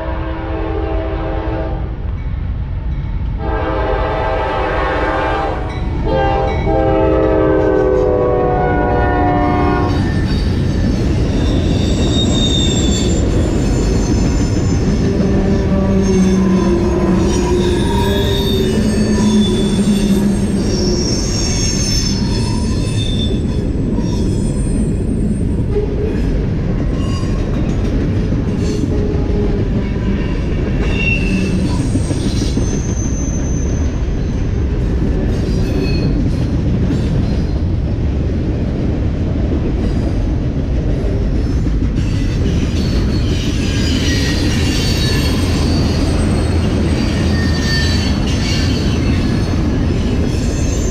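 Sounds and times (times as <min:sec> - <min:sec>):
train rumbling on rails: 0:00.0 - 0:50.9
wheel squeals: 0:09.9 - 0:25.3, 0:42.1 - 0:50.9.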